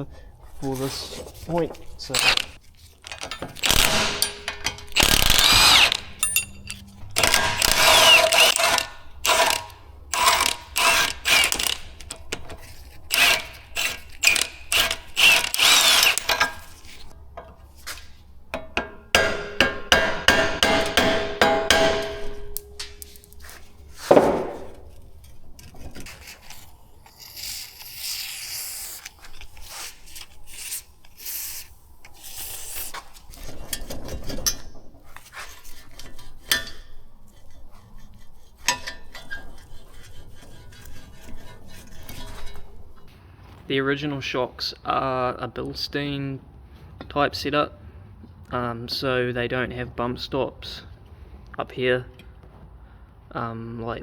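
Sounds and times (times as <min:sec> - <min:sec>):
hand ratchet clicking: 0:03.1 - 0:12.3, 0:13.1 - 0:17.1
metallic ringing: 0:03.2 - 0:08.2, 0:18.5 - 0:23.6
sharp metal knock: 0:18.5 - 0:23.1.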